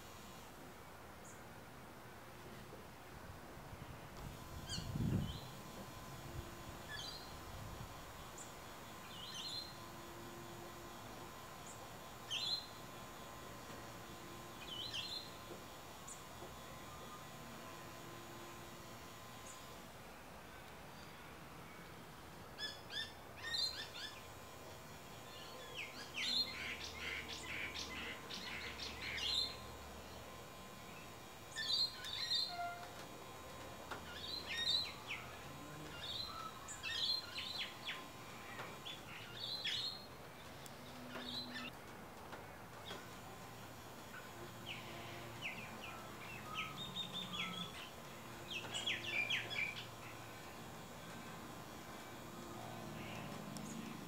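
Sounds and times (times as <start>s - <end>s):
small birds chirping: 11.6s - 12.9s, 14.5s - 16.4s, 25.0s - 32.7s, 34.0s - 41.7s, 44.1s - 51.0s.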